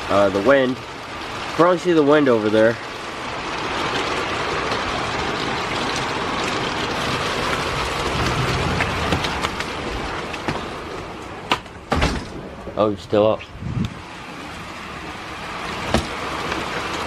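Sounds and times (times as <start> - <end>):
heavy rain falling: 0.0 - 17.0
rain drop taps: 0.2 - 11.8.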